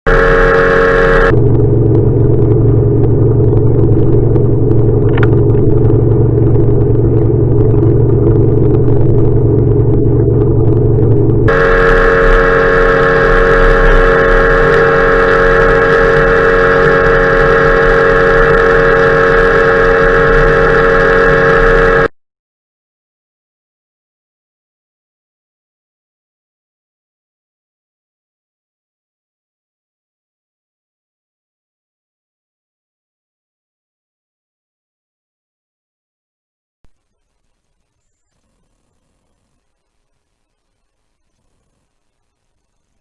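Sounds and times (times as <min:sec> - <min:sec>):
boat motor running: 0:00.0 - 0:22.1.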